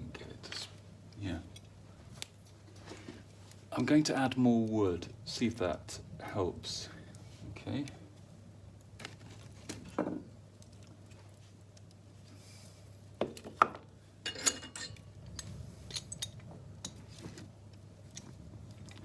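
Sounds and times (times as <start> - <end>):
wood knocking in fireplace: 9.6 - 10.4.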